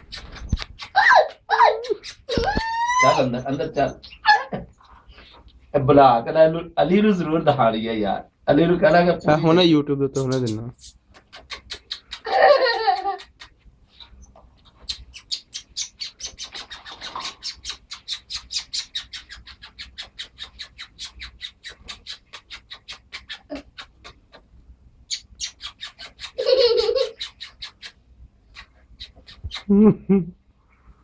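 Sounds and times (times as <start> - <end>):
small bird chirping harshly: 0.0 - 4.4, 10.2 - 12.4, 13.2 - 24.5, 25.1 - 29.7.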